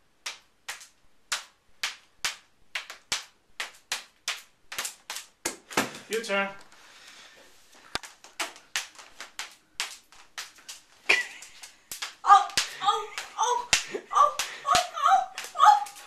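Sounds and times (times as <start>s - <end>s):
sticks tapping together: 7.8s - 16.0s
voices: 12.2s - 16.0s.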